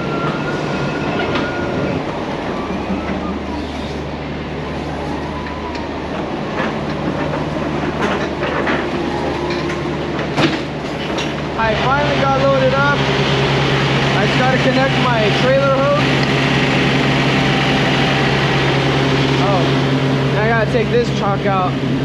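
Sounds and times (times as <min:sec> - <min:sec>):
machinery hum: 0:00.0 - 0:22.0
knocks and clanks: 0:06.2 - 0:12.1.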